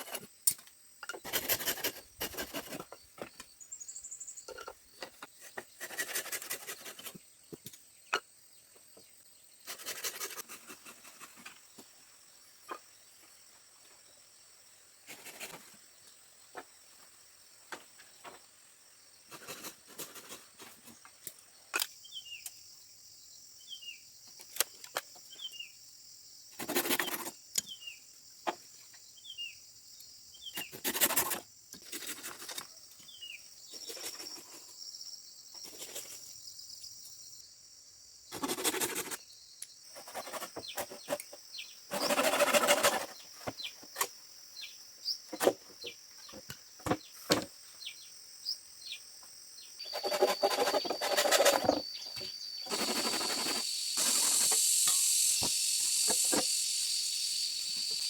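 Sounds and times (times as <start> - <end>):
high-pitched insect buzz: 26.4 - 28.0, 38.3 - 44.0, 49.6 - 58.0
scraping and sharp knocks: 49.9 - 53.6.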